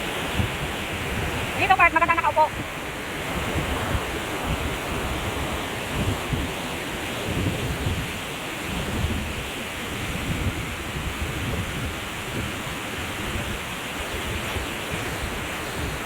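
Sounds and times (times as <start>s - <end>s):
waterfall rushing: 0.0s - 9.9s
wind buffeting microphone: 0.0s - 16.0s.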